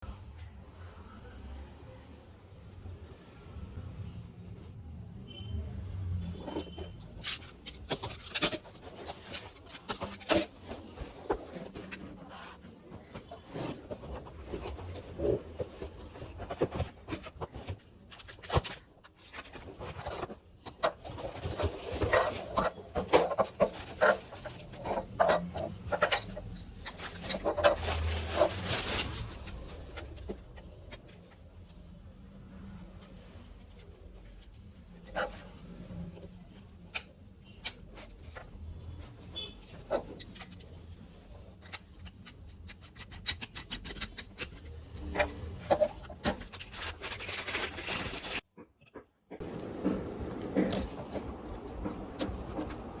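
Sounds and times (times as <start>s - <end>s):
clicks knocks and rubbing of handling: 6.4s - 31.4s.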